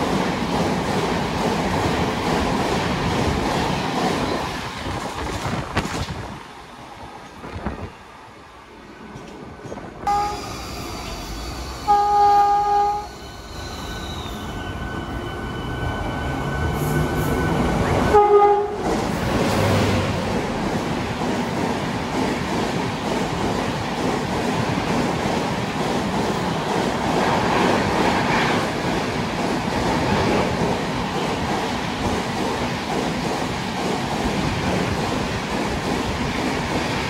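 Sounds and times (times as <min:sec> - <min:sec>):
train passing at speed: 0:00.0 - 0:37.0
locomotive horn blasts: 0:10.1 - 0:10.6, 0:11.8 - 0:13.2, 0:18.1 - 0:18.8.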